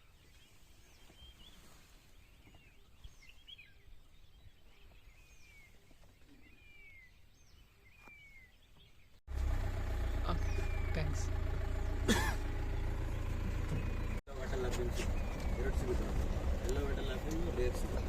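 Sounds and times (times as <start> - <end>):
birds chirping and whistling: 0.0 - 9.2, 10.4 - 11.2, 12.7 - 18.0.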